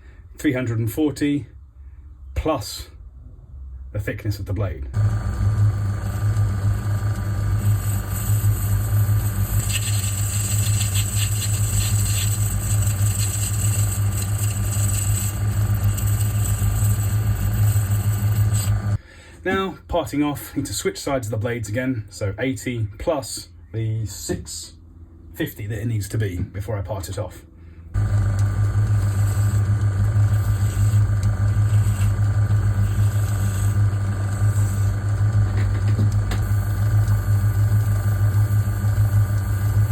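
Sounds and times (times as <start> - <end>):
metal lathe humming: 5.0 - 19.0, 28.0 - 39.9.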